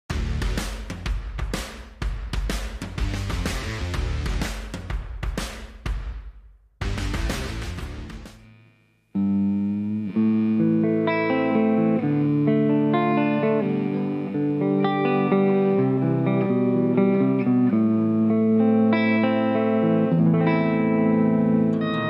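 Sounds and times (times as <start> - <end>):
electric guitar playing: 6.8 - 22.0.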